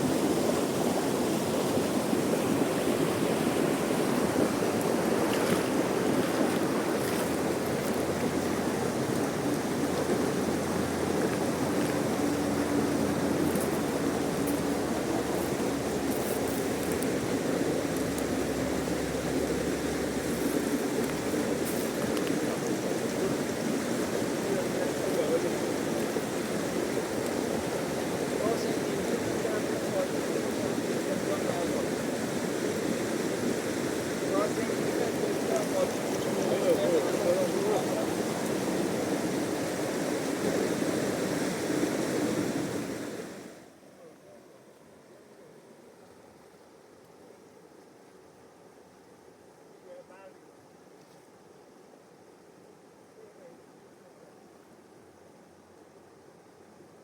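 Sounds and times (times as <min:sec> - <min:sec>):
river rushing: 0:00.0 - 0:47.7.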